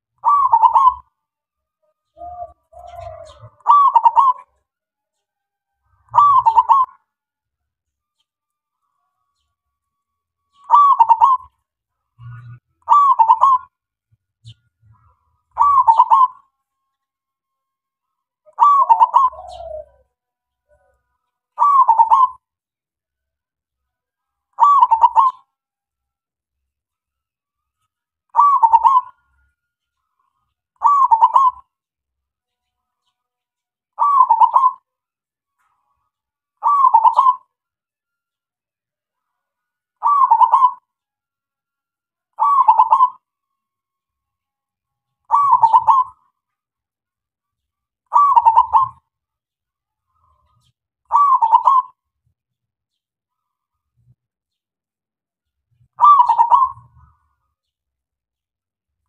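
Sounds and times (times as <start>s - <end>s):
dove cooing: 0.2s - 1.1s, 2.1s - 4.6s, 6.0s - 7.0s, 10.7s - 11.5s, 12.2s - 13.7s, 15.5s - 16.4s, 18.4s - 20.0s, 21.6s - 22.4s, 24.6s - 25.4s, 28.4s - 29.2s, 30.8s - 31.6s, 34.0s - 34.8s, 36.6s - 37.5s, 40.0s - 40.9s, 42.4s - 43.2s, 45.3s - 46.3s, 48.1s - 49.0s, 51.1s - 52.0s, 56.0s - 57.2s.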